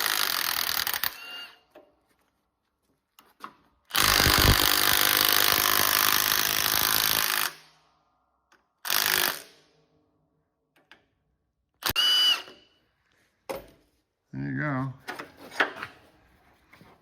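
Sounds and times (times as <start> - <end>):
power tool running: 3.9 - 7.6.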